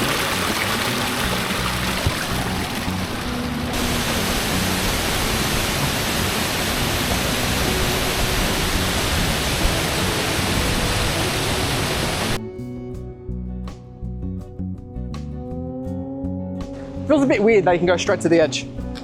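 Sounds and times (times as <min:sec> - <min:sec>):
waterfall rushing: 0:00.0 - 0:12.4.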